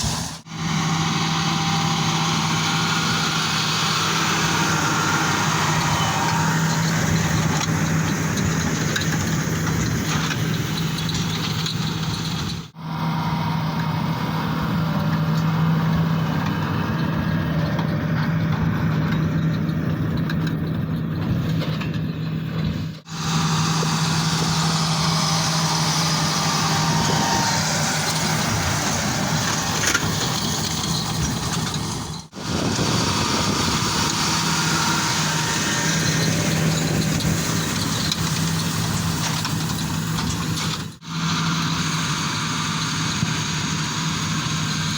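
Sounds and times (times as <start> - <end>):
tractor running under load: 0.0 - 44.9
baler baling hay: 23.1 - 39.4.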